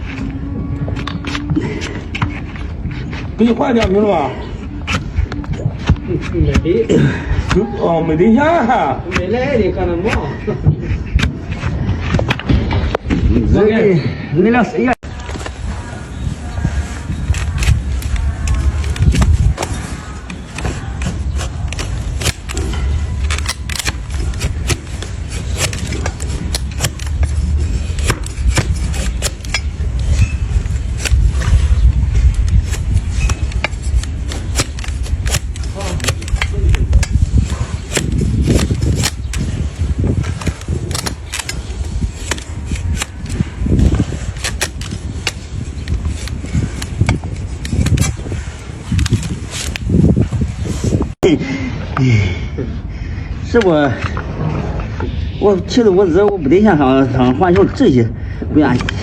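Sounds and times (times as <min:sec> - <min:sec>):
hoof trimming cracks: 0:00.0 - 0:13.2, 0:17.0 - 0:51.0.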